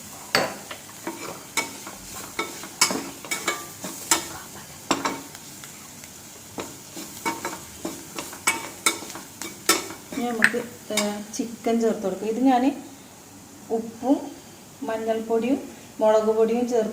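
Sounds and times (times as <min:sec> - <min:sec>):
oil sizzling: 0:00.0 - 0:16.9
spoon scraping a frying pan: 0:00.3 - 0:05.3, 0:06.6 - 0:11.3.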